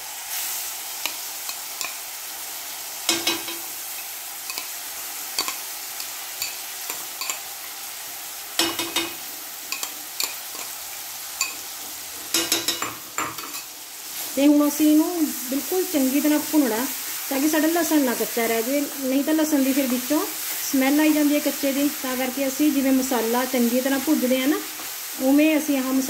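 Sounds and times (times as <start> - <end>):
paste sizzling with small pops: 0.3 - 14.2, 23.8 - 25.2.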